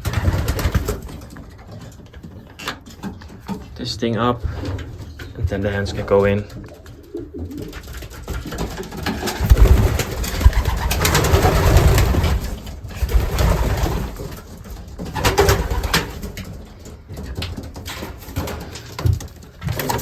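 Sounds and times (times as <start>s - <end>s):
wings flapping and scuffling: 0.0s - 20.0s
pigeons cooing: 4.4s - 20.0s.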